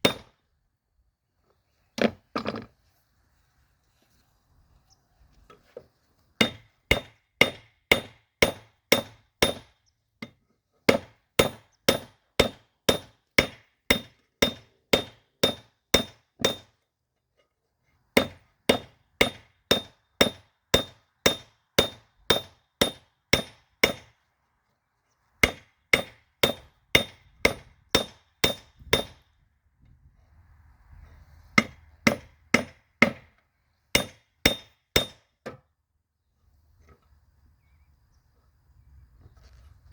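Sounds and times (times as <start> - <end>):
hammer striking steel on anvil: 0.0 - 0.3, 6.4 - 9.7, 11.0 - 16.7, 18.2 - 24.1, 25.4 - 29.3, 31.6 - 33.3, 34.0 - 35.3.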